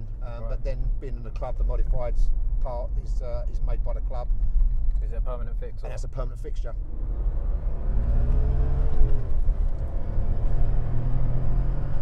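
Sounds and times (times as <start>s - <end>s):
road rumble: 0.0s - 12.0s
car engine accelerating: 6.8s - 12.0s.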